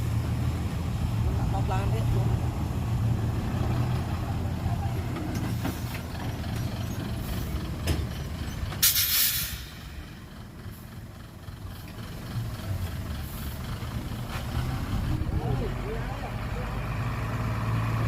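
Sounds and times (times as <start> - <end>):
heavy diesel engines rumbling: 0.0 - 18.0
air brake hiss: 8.8 - 10.0.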